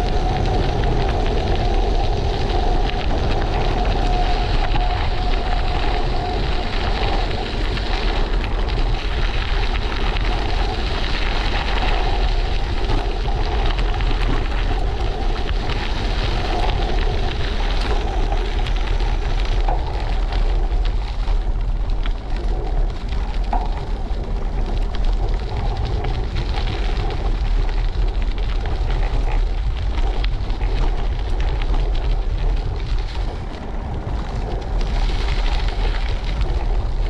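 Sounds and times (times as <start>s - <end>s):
tyre and road noise: 0.0s - 37.0s
wind buffeting microphone: 0.0s - 37.0s.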